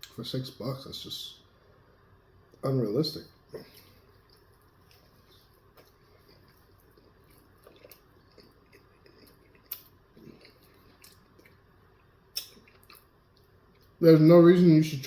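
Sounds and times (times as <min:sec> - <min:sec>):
chewing and wet mouth noises: 0:03.6 - 0:14.0.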